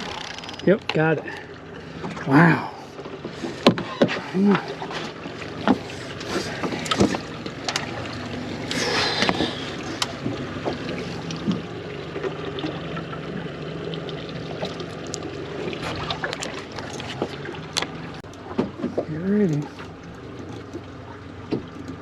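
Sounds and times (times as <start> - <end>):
fishing gear clicks and knocks: 0.0 - 1.0, 14.6 - 20.9
boat motor hum: 0.0 - 22.0
water around the hull: 0.0 - 22.0.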